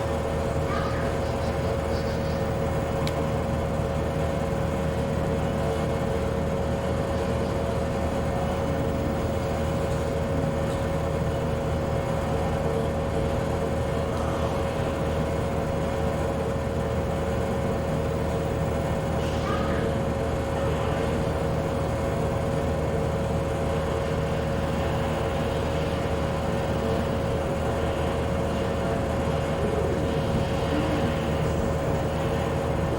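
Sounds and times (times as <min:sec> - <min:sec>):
constant hum: 0:00.0 - 0:32.9.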